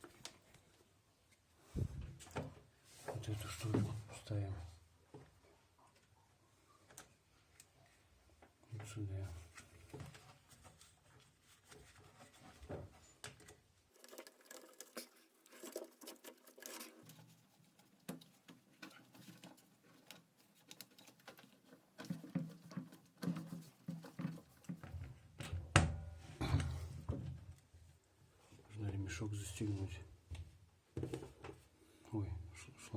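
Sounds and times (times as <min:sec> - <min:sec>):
plastic and metal rustling: 0:08.9 - 0:25.5.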